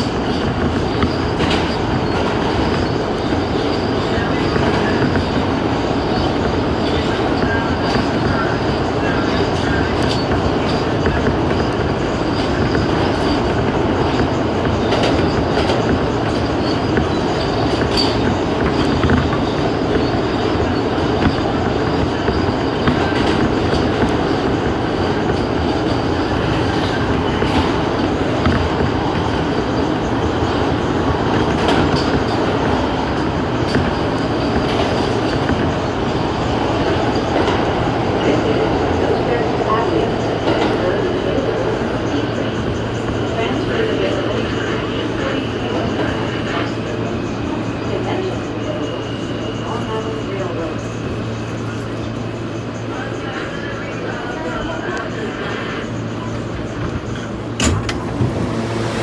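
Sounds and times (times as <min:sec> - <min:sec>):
train wheels rumbling on rail: 0:00.0 - 0:59.0
clicks over rail joints: 0:56.5 - 0:59.0.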